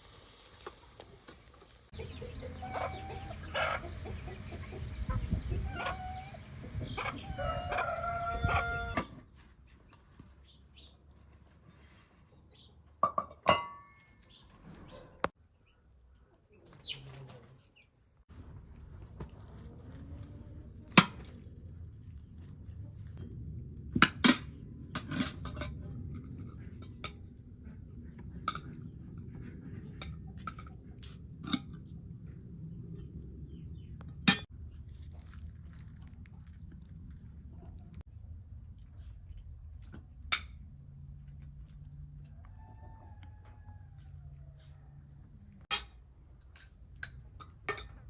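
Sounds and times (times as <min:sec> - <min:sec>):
steady low rumble: 0:02.0 - 0:07.4, 0:21.4 - 0:39.8.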